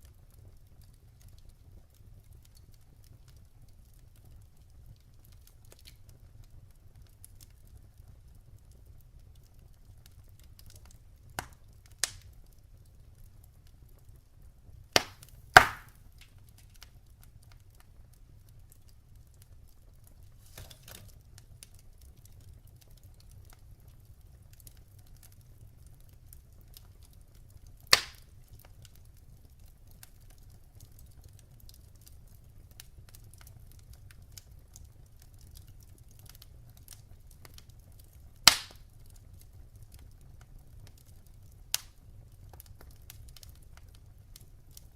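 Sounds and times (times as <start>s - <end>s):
logs burning in fireplace: 0.0s - 44.9s
sharp pops from wood: 15.0s - 16.0s, 27.9s - 28.2s, 38.5s - 38.7s.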